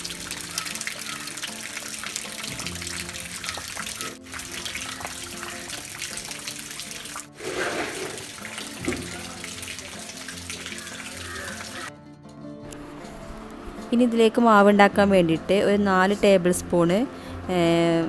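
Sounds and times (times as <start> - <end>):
water rushing: 0.0 - 11.9
background music: 0.0 - 18.0.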